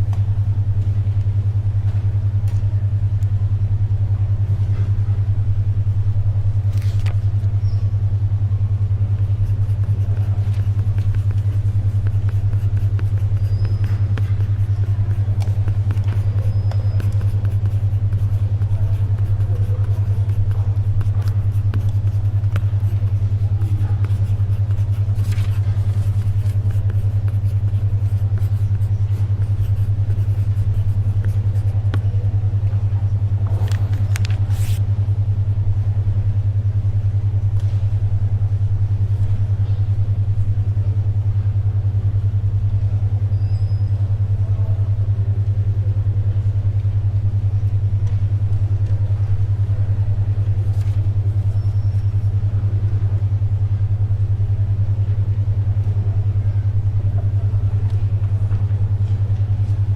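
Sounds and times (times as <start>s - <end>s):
faint library ambience: 0.0s - 59.9s
low pulsing hum: 0.0s - 59.9s
paper rustling: 9.5s - 31.7s, 33.6s - 34.8s, 50.7s - 51.0s.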